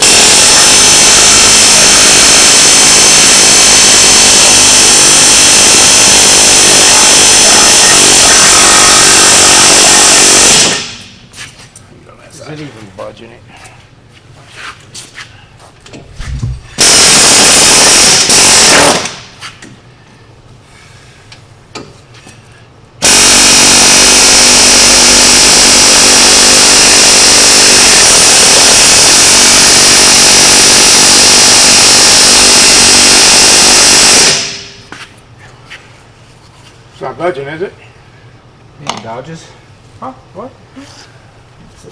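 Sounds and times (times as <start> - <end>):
pneumatic air tool hammering: 0.0 - 11.2, 15.9 - 19.8, 23.0 - 34.9.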